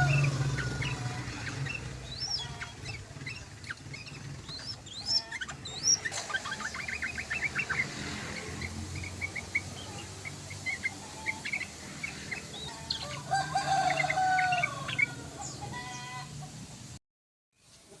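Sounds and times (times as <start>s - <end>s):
rooster crowing: 0.0s - 1.5s, 12.6s - 16.4s
bulbul chirping: 0.0s - 15.7s.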